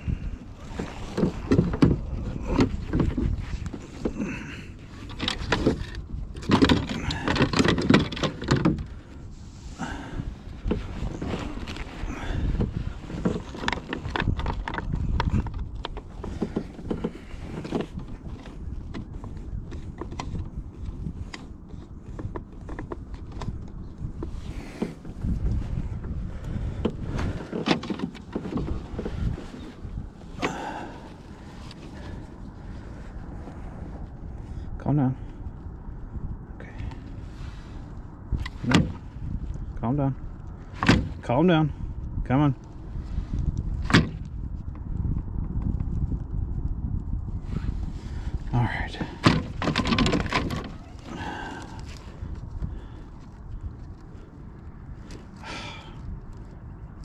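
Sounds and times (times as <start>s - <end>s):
wind rumble on microphone: 0.0s - 57.0s
gear knocking and rattling: 0.6s - 9.2s, 47.7s - 54.0s
sharp knocks and clicks: 5.1s - 8.9s, 40.8s - 41.2s, 49.1s - 50.8s.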